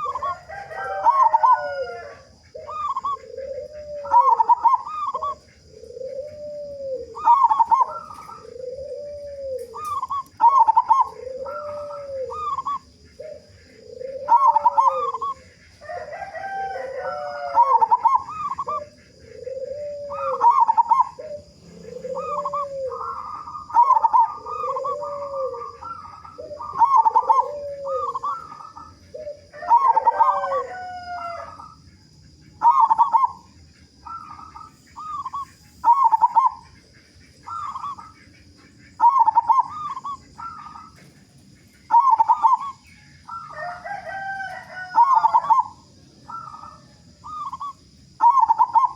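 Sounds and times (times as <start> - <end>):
dove cooing: 0.0 - 48.9
bird call gliding through pitches: 32.5 - 40.9.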